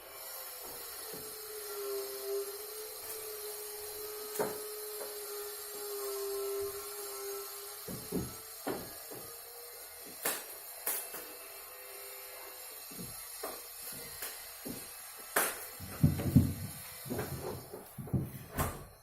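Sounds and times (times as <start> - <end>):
sharp knocks: 15.4 - 18.8.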